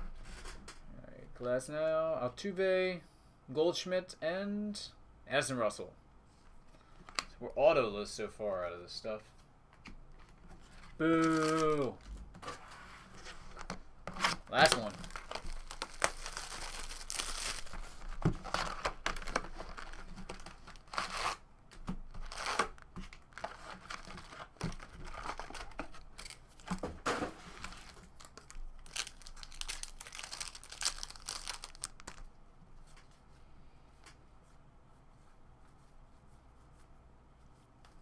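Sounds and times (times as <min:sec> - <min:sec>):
cards rustling: 0:09.8 - 0:32.3
wrapper tearing and crinkling: 0:11.0 - 0:12.1, 0:14.2 - 0:21.4, 0:22.1 - 0:26.8, 0:27.4 - 0:32.3.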